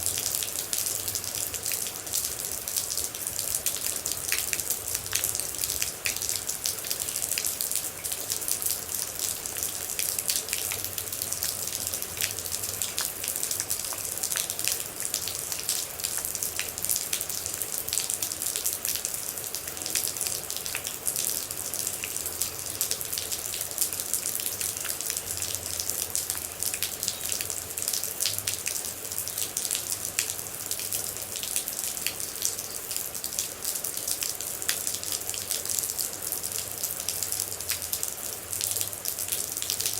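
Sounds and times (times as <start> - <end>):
steady rain hiss: 0.0 - 39.9
water drips and ticks: 0.0 - 39.9.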